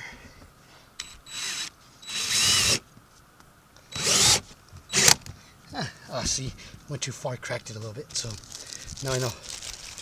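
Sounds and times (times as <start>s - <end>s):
power drill driving screws: 1.0s - 2.8s, 3.9s - 5.2s
plastic cracking: 8.1s - 10.0s.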